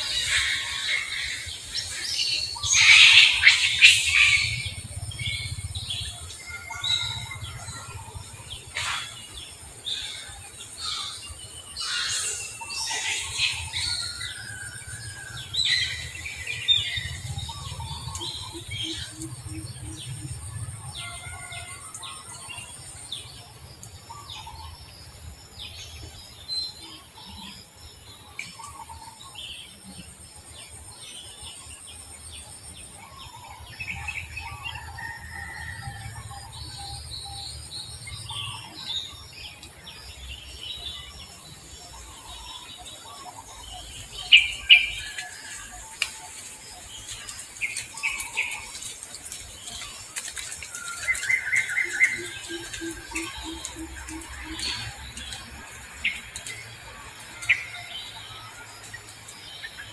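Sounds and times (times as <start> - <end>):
birds chirping and calling: 0.0 - 24.9, 25.6 - 59.9
low rumble: 2.4 - 9.3.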